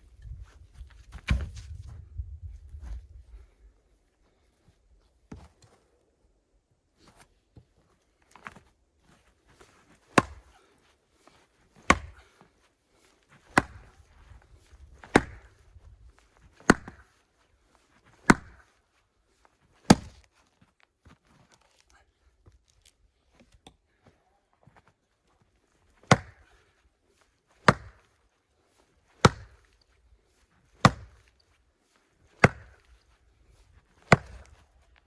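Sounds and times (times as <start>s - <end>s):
axe chopping firewood: 10.0s - 10.6s, 11.8s - 12.3s, 13.4s - 14.0s, 15.0s - 15.6s, 16.6s - 17.1s, 18.2s - 18.7s, 19.9s - 20.3s, 26.0s - 26.5s, 27.6s - 28.1s, 29.1s - 29.7s, 30.8s - 31.4s, 32.3s - 32.9s, 34.0s - 34.6s.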